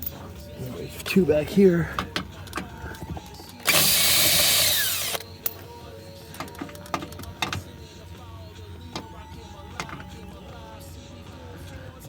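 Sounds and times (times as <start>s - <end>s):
clicks of tool and bolts: 1.9s - 5.7s, 6.3s - 7.7s, 9.8s - 10.2s
cordless power tool running: 3.6s - 5.2s.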